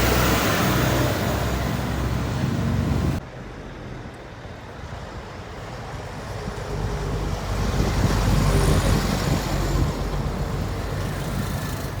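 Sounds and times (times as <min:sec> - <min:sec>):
truck driving past: 0:00.0 - 0:03.9.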